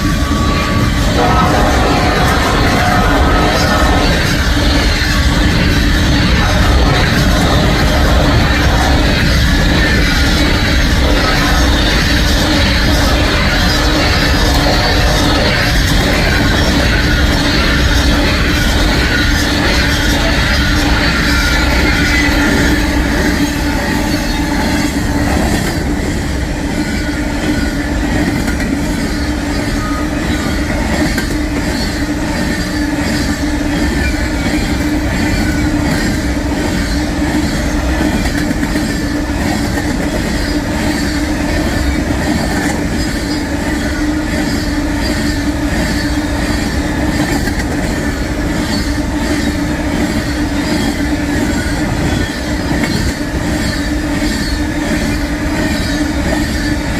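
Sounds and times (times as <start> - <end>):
freight train cars rumbling and clattering: 0.0 - 56.9
steady hum: 1.2 - 15.7.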